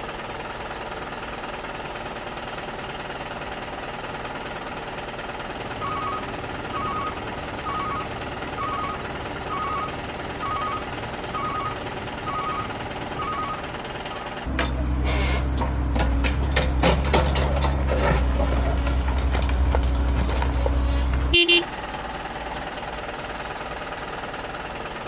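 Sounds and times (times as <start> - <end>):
toy truck motor hum: 5.8 - 15.4.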